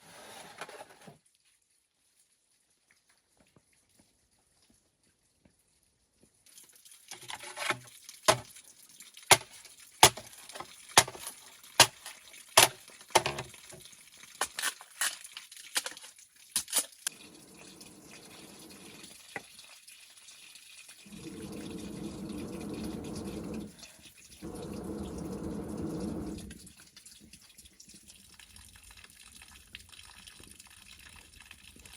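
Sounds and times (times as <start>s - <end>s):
tap running into sink: 7.2s - 8.5s, 9.3s - 14.6s, 21.1s - 23.7s, 24.4s - 26.7s.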